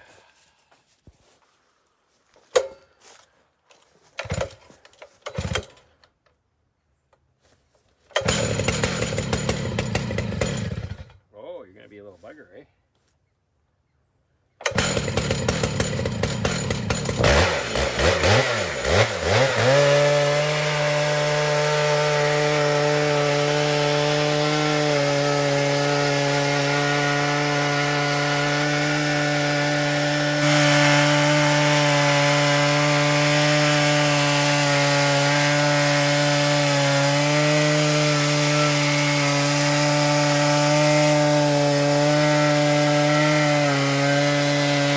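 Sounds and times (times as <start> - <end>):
chainsaw cutting log: 3.8 - 6.0, 8.1 - 11.2, 14.6 - 44.9.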